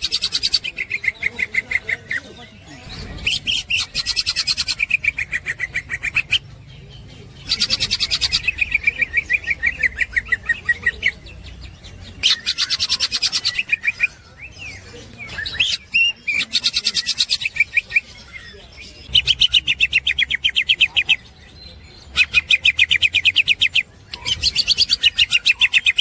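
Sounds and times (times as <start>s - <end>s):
bird chattering rapid notes: 0.0s - 6.6s, 7.4s - 21.2s.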